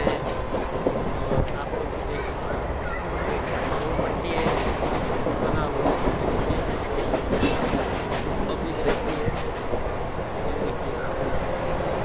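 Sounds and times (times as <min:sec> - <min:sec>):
rumble of wheels on rails: 0:00.0 - 0:12.0.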